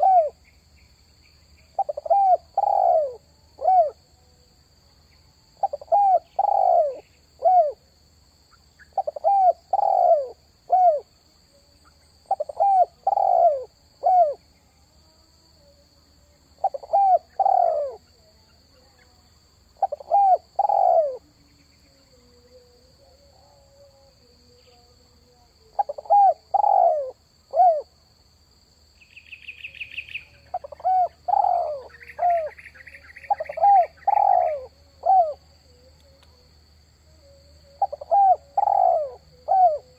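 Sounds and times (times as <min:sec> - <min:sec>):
dove cooing: 0:00.0 - 0:00.4, 0:01.7 - 0:04.0, 0:05.6 - 0:07.8, 0:09.0 - 0:11.1, 0:12.3 - 0:14.4, 0:16.6 - 0:18.1, 0:19.8 - 0:21.3, 0:25.6 - 0:27.9, 0:30.2 - 0:35.9, 0:37.2 - 0:39.9
faint high hum: 0:00.0 - 0:39.9.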